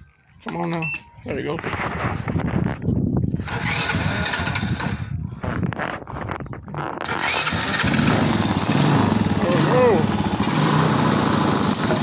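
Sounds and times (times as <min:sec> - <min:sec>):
small quad engine running unevenly: 0:03.4 - 0:05.2, 0:07.0 - 0:12.0.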